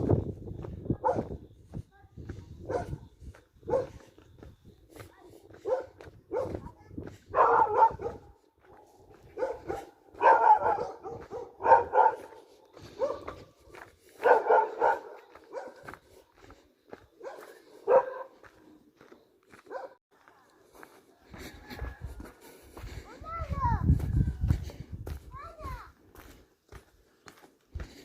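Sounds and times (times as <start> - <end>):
dog barking: 1.0 - 1.4, 2.6 - 4.1, 5.5 - 16.0, 17.1 - 18.6, 19.5 - 20.0.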